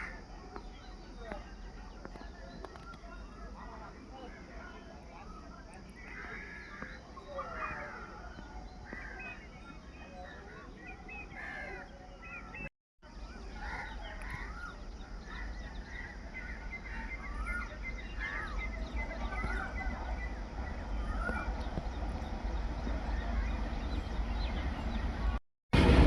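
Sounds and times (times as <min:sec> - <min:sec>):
birds chirping: 0:00.0 - 0:25.4
low rumble: 0:18.8 - 0:26.0.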